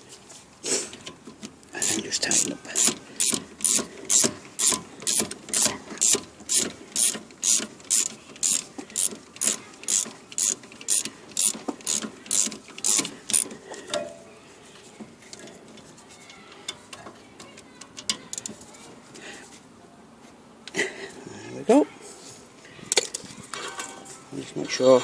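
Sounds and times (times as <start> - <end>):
ratchet wrench clicking: 1.8 - 13.6, 17.8 - 18.6
faint handling sounds: 12.8 - 20.5.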